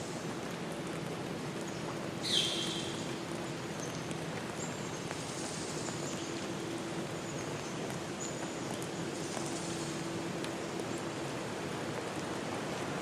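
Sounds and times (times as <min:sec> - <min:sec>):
rain or rushing water hiss: 0:00.0 - 0:13.0
high bird calls: 0:02.2 - 0:03.0.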